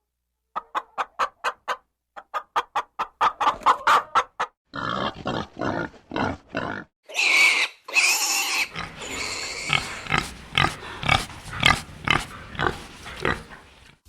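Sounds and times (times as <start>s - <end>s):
animal calls: 8.4s - 14.0s.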